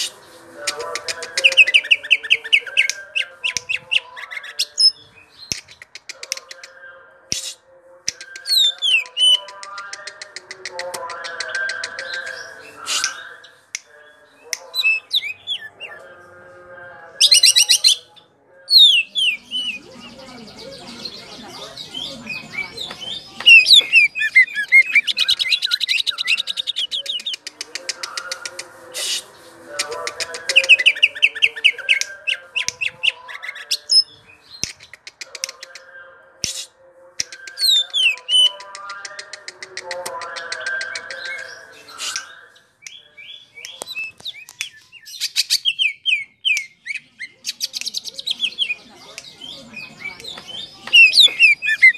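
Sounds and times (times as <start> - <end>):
bird singing: 0.0 - 7.1, 8.2 - 16.4, 17.2 - 28.5, 37.2 - 39.3, 39.9 - 51.9
sharp bird clicks: 5.4 - 12.3, 34.6 - 41.4.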